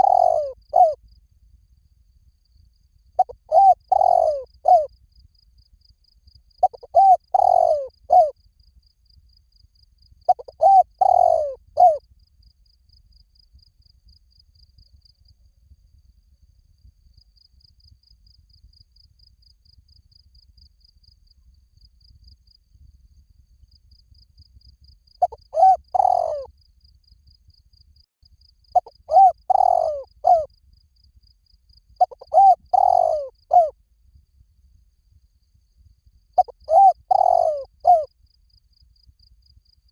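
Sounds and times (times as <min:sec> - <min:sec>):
dove cooing: 0:00.0 - 0:01.0, 0:03.2 - 0:04.9, 0:06.6 - 0:08.3, 0:10.3 - 0:12.0, 0:25.2 - 0:26.5, 0:28.8 - 0:30.5, 0:32.0 - 0:33.7, 0:36.4 - 0:38.1.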